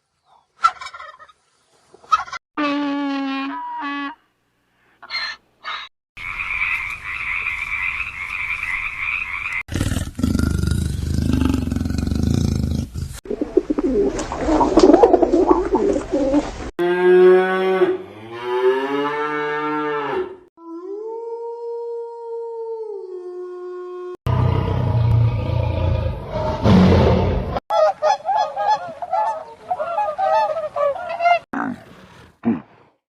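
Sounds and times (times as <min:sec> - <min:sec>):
animal sounds: 0:05.0 - 0:16.5.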